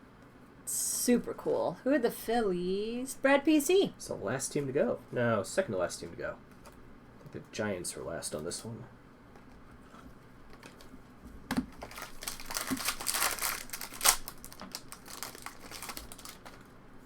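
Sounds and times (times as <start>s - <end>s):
wrapper crinkling: 10.5s - 11.0s, 11.6s - 16.7s
cards being handled: 10.5s - 16.7s.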